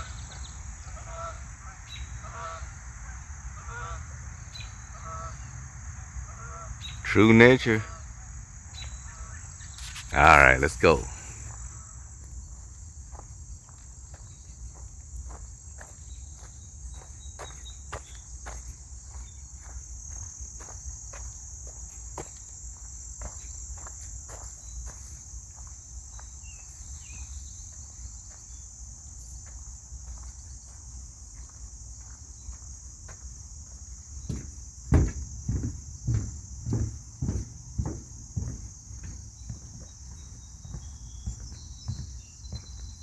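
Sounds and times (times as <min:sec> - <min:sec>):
insects chirping: 0:00.0 - 0:43.0
footsteps on a trail: 0:09.8 - 0:11.6, 0:29.5 - 0:43.0
loud knocks: 0:34.3 - 0:38.7.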